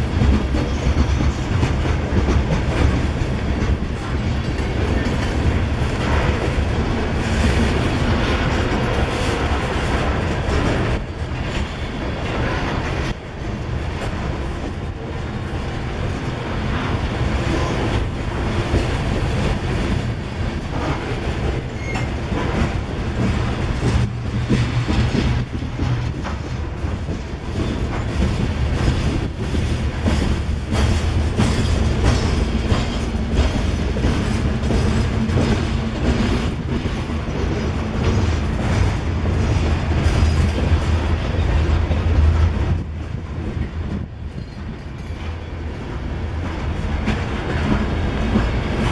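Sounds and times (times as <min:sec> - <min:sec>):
diesel locomotive rumble: 0:14.9 - 0:44.3.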